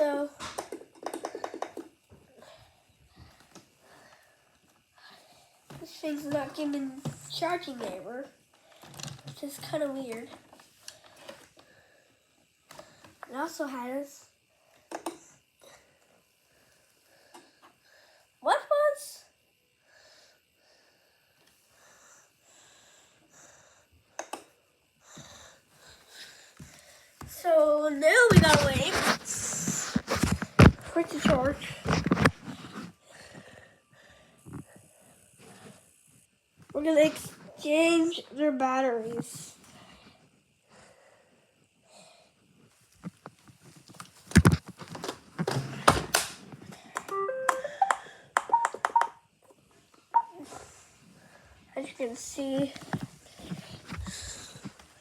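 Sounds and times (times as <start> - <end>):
person breathing: 19.8 - 24.0, 31.6 - 35.8, 39.7 - 42.4, 53.2 - 55.0
plastic clicks and knocks: 44.0 - 46.3
rising electronic tones: 47.1 - 49.2.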